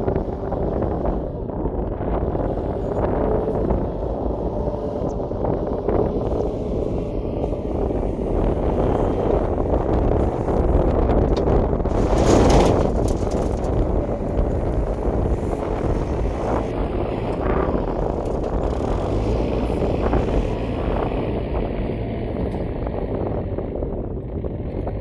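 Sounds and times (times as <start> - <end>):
farm machinery engine running: 0.0 - 25.0.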